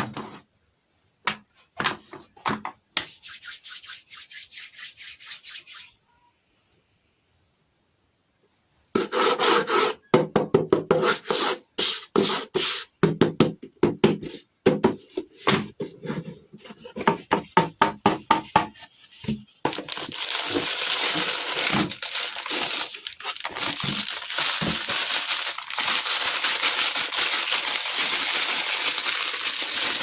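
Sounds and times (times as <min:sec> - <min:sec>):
hands scraping and tapping packaging: 0:13.5 - 0:30.0
packaging crinkling: 0:19.7 - 0:30.0.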